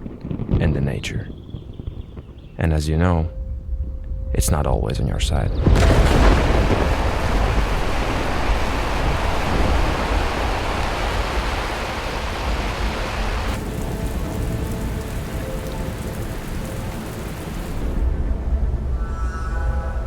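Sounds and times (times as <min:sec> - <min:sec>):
heavy rain falling: 0:05.8 - 0:18.2.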